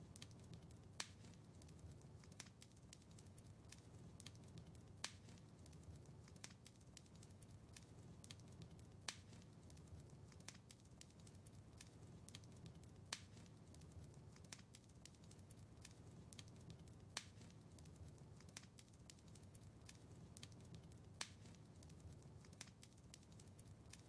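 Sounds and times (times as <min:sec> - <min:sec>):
fire popping: 0:00.0 - 0:24.0
wood fire crackling: 0:00.0 - 0:24.0.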